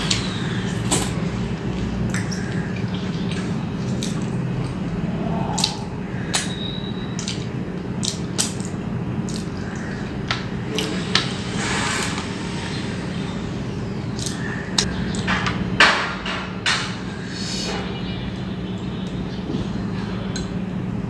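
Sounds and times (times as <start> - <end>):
low mechanical hum: 0.0 - 21.0
person chewing food: 0.8 - 10.2.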